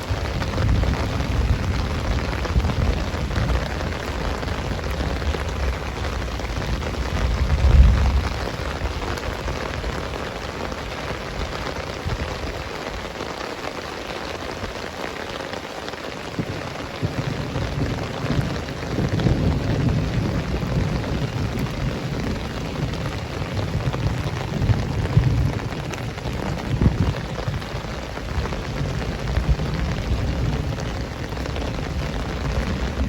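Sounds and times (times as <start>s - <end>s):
low rumbles: 0.0s - 9.9s
heavy rain pouring: 0.0s - 33.0s.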